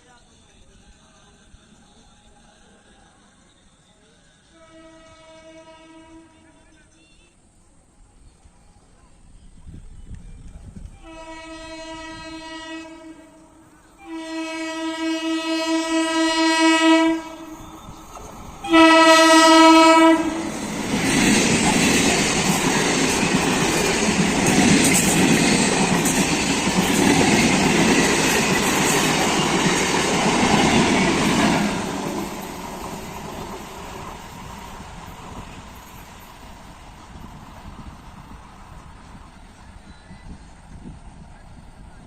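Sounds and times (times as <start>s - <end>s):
train horn blasts: 4.5s - 6.6s, 11.0s - 17.9s, 18.6s - 20.7s
train wheels clattering on rails: 20.4s - 39.9s.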